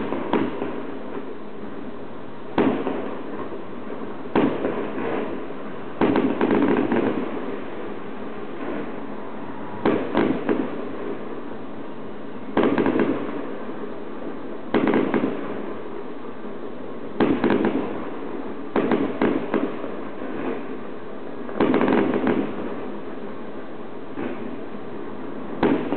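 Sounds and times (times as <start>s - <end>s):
firework shells bursting: 0.0s - 1.3s, 2.5s - 9.0s, 9.7s - 11.3s, 12.5s - 13.6s, 14.7s - 15.9s, 17.2s - 18.1s, 18.7s - 20.8s, 21.5s - 22.8s, 25.6s - 25.9s.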